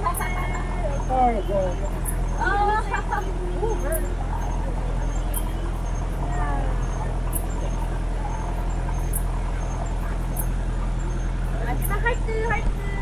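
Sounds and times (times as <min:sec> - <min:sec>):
boat engine humming: 0:00.0 - 0:13.0
faint voices: 0:00.0 - 0:13.0
insects chirping: 0:00.0 - 0:13.0.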